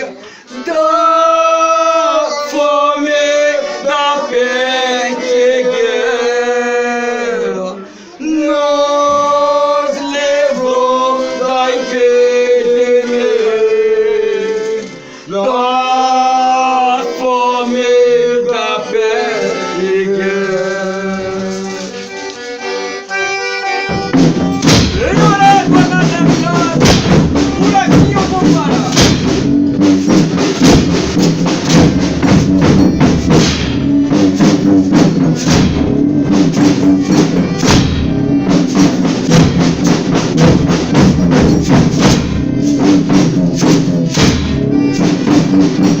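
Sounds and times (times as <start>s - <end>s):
men singing slowly: 0.0s - 22.1s.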